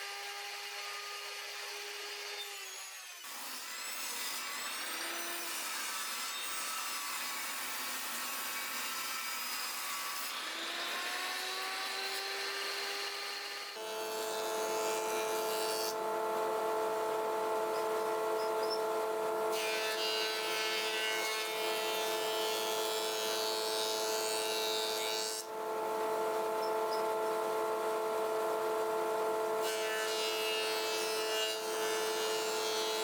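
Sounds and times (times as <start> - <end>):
table saw motor whine: 10.3 - 33.0.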